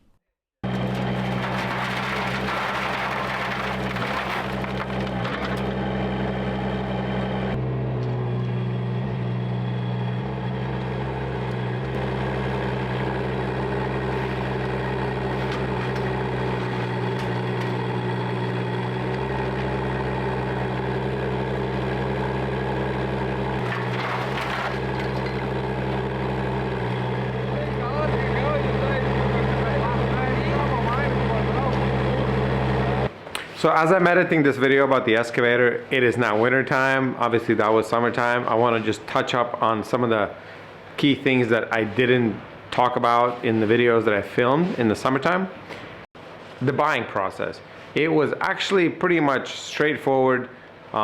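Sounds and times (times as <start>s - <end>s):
engine running steadily: 0.7s - 33.1s.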